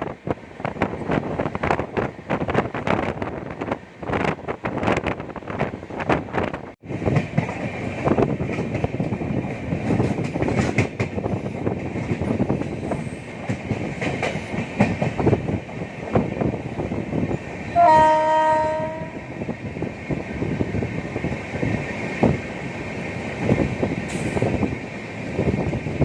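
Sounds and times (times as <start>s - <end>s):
train rumbling on track: 0.0s - 26.0s
train horn: 17.7s - 19.4s.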